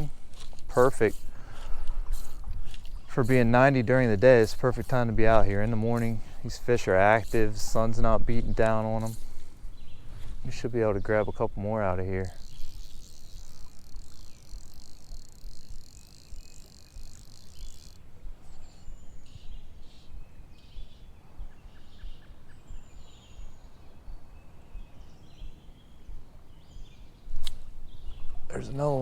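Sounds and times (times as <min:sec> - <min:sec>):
high-pitched insect trill: 0:12.2 - 0:18.0.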